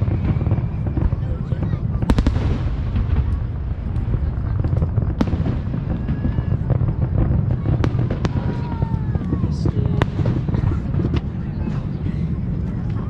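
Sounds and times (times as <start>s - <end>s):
sharp firework crack: 0.0s - 11.3s
fireworks rumbling bangs: 0.0s - 13.0s.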